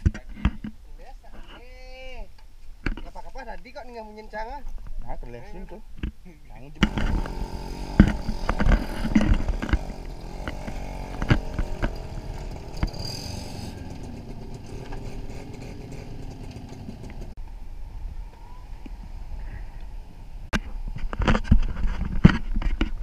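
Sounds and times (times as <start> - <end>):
motorbike engine running: 6.8 - 17.3
knocks and rattles from bumps: 6.8 - 17.4.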